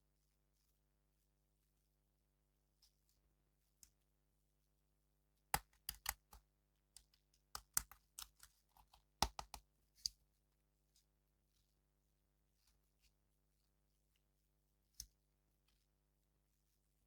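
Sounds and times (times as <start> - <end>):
plastic parts clicking and tapping: 5.6 - 6.4, 7.0 - 10.1.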